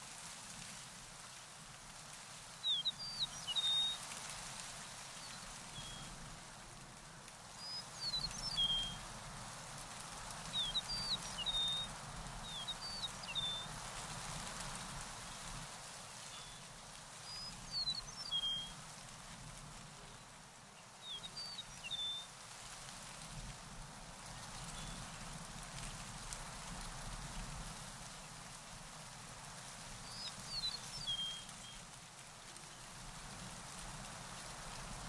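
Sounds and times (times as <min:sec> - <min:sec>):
steady outdoor hiss: 0:00.0 - 0:35.0
songbird chirping: 0:07.6 - 0:09.1, 0:10.4 - 0:13.8, 0:30.0 - 0:31.9.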